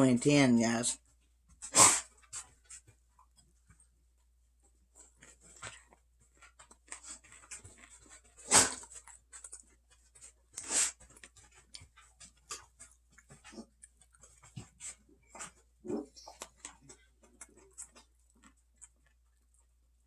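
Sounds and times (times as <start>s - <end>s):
person chewing close to microphone: 4.6s - 20.0s.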